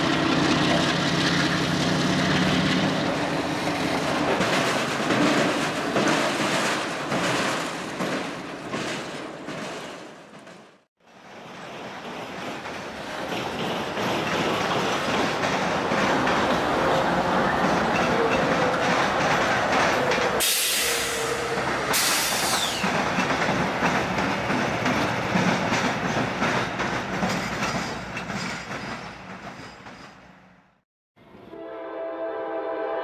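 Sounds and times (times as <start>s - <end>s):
diesel locomotive engine drone: 0.0s - 8.7s, 12.8s - 28.4s
train wheels on rails: 0.0s - 30.8s
loud hiss: 20.4s - 22.9s.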